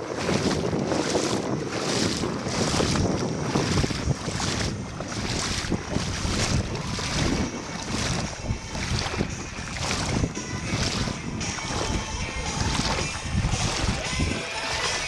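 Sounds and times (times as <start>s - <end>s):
water washing around boat: 0.0s - 15.0s
wind buffeting microphone: 0.0s - 15.0s.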